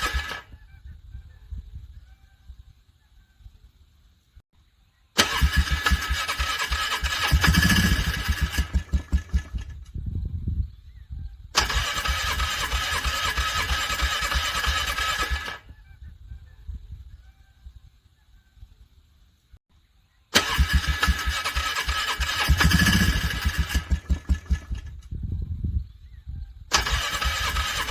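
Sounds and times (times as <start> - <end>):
engine cranking on electric starter: 0.0 - 0.5, 5.2 - 9.9, 11.6 - 15.6, 20.3 - 25.0, 26.7 - 27.9
uneven engine pulses: 0.0 - 0.8, 5.2 - 10.0, 11.5 - 16.0, 20.3 - 25.2, 26.7 - 27.9.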